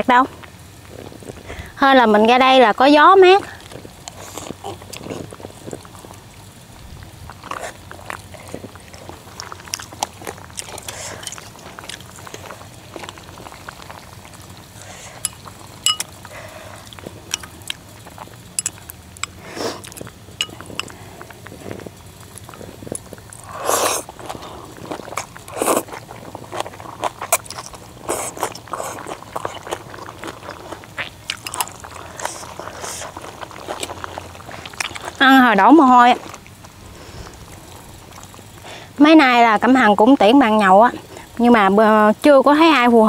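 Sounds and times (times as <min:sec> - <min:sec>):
person chewing: 0:00.4 - 0:01.8, 0:03.4 - 0:39.0
utensils clinking against bowl: 0:15.2 - 0:16.2, 0:18.6 - 0:19.4.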